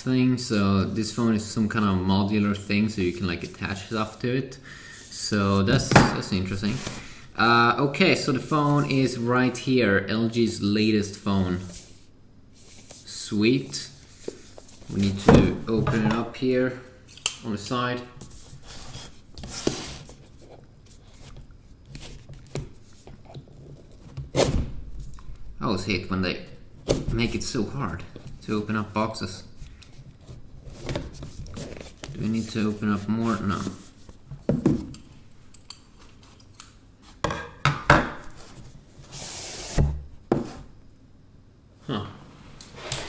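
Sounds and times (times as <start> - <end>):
cardboard rubbing and scraping: 6.6 - 7.3, 18.2 - 24.6, 38.3 - 40.7
cardboard scraping slide: 6.6 - 7.3, 18.2 - 20.3, 38.4 - 40.7, 42.4 - 43.0.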